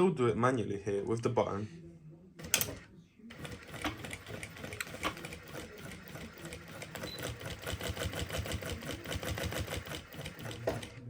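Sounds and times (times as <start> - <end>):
sewing machine stitching: 2.4 - 11.0.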